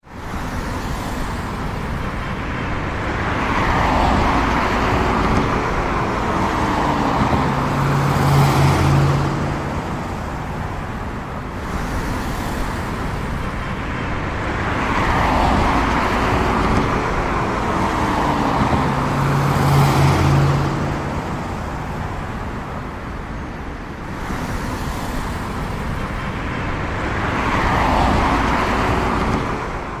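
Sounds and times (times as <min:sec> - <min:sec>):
cars driving past: 0:00.3 - 0:30.0.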